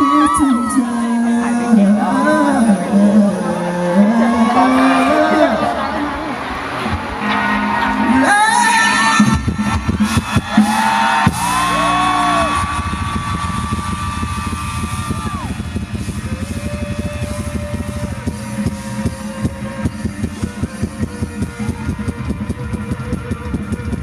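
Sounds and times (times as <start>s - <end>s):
bending lead guitar notes: 0.0s - 24.0s
rock band playing: 6.6s - 24.0s
fast drum beat: 9.2s - 24.0s.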